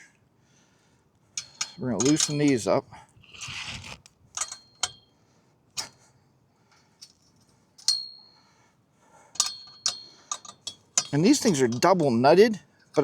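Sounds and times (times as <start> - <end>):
metal wrench clinking on nuts: 1.4 - 2.7, 4.4 - 5.0, 7.8 - 8.2, 9.4 - 12.2.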